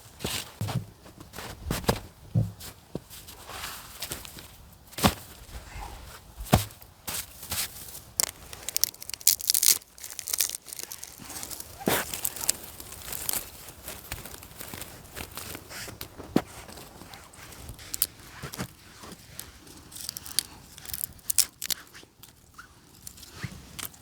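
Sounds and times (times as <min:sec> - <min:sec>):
crunching tearing and rustling: 0:05.0 - 0:24.0.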